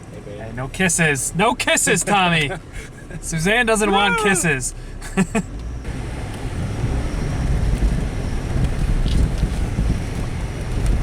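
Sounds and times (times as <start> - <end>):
car engine and tyres rumbling: 0.0 - 11.0
wind buffeting microphone: 5.8 - 11.0.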